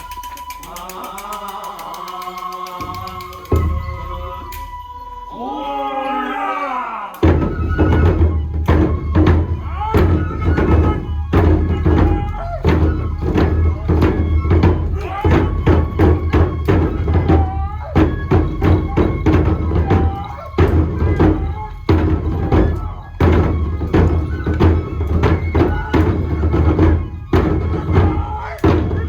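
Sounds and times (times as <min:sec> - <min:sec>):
deep drum beating: 0:07.2 - 0:29.0.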